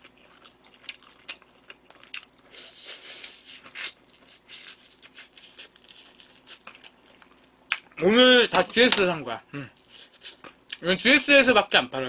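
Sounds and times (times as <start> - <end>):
person chewing crunchy food: 0.0 - 8.0, 9.6 - 10.8.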